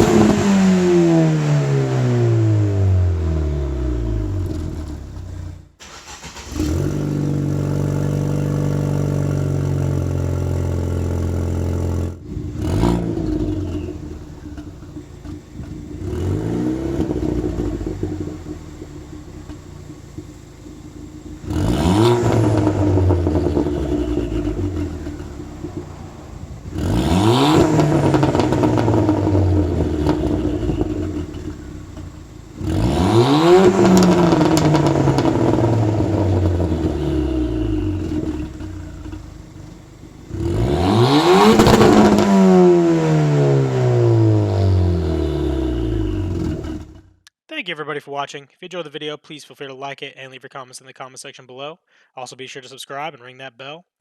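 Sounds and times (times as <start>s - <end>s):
car engine revving: 0.0s - 47.1s
car engine idling: 0.0s - 47.2s.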